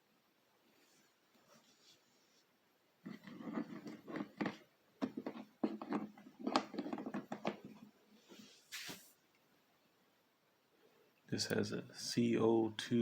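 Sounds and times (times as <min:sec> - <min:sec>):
plastic casing clicks and knocks: 0:04.2 - 0:07.8.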